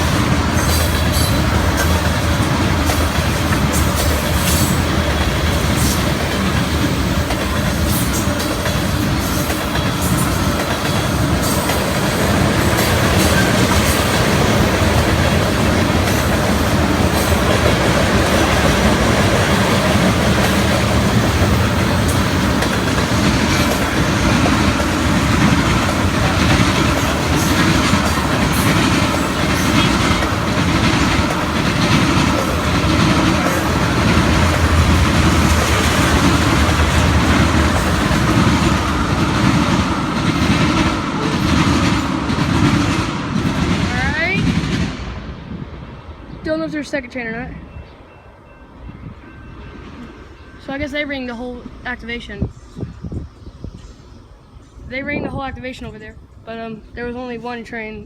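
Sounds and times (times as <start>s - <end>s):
wheels clacking over rail joints: 0.0s - 44.9s
freight train cars rumbling: 0.0s - 58.0s.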